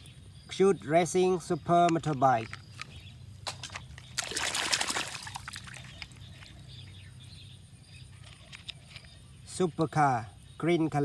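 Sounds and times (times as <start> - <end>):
water splashing over toy car: 3.5 - 6.2.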